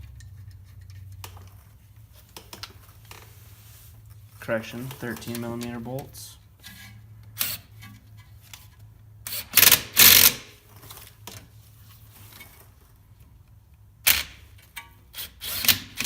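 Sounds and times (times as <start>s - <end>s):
ratchet wrench clicking: 9.3s - 10.4s.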